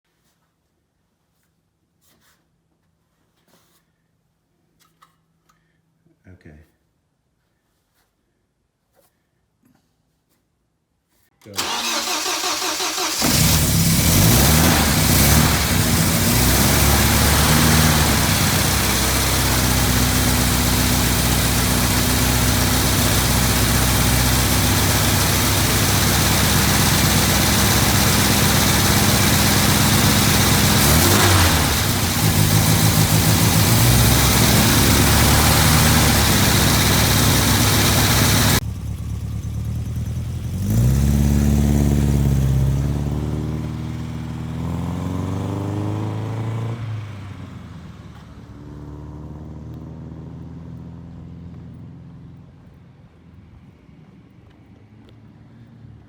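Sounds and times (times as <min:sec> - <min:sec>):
engine starter cranking: 0:11.5 - 0:20.2, 0:21.4 - 0:38.6
car engine idling: 0:11.6 - 0:41.0.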